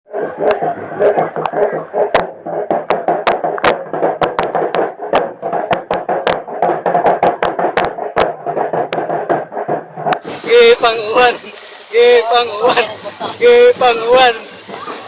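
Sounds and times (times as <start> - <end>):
crowd hubbub: 0.1 - 15.0
sharp drum hits: 0.2 - 11.4.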